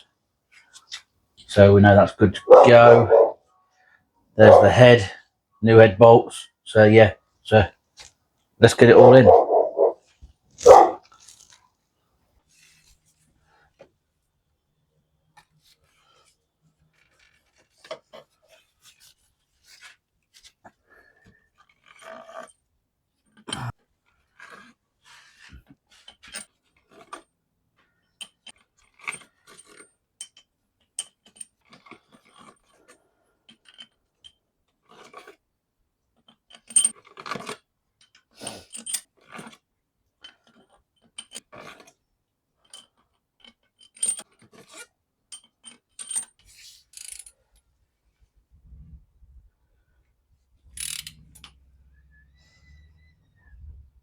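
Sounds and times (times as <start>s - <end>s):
metal clinks and scrapes: 36.5s - 37.6s, 38.6s - 39.6s, 43.8s - 47.7s, 50.6s - 54.0s.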